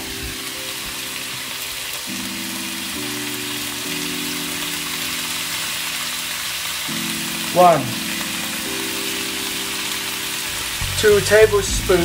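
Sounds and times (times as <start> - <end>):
background music with held chords: 0.0 - 12.0
vegetables sizzling in a wok: 0.0 - 12.0.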